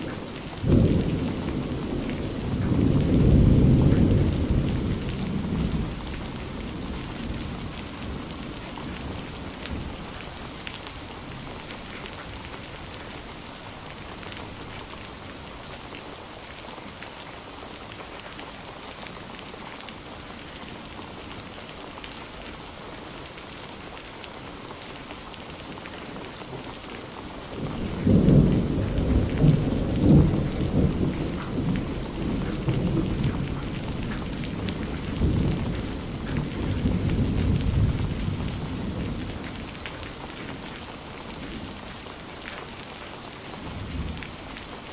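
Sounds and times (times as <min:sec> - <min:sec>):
thunder rumbling: 0:00.0 - 0:13.2, 0:27.4 - 0:42.1, 0:43.6 - 0:44.9
steady rain falling: 0:00.0 - 0:44.9.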